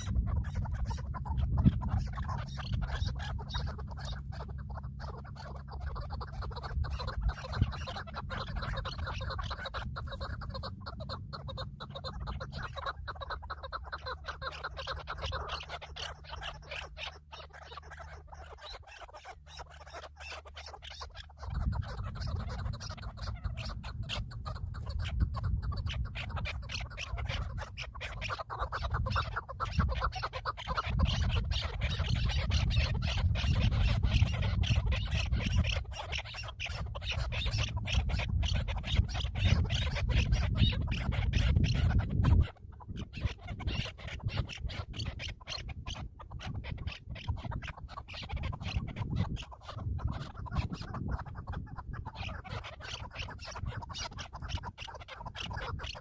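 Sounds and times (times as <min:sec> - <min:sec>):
steady low rumble: 0:00.0 - 0:52.6
birds calling: 0:00.0 - 0:56.0.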